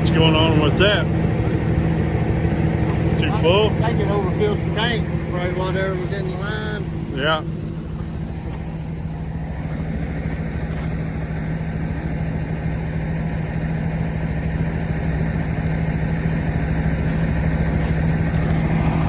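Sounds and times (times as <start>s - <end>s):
diesel truck engine idling: 0.0s - 19.0s.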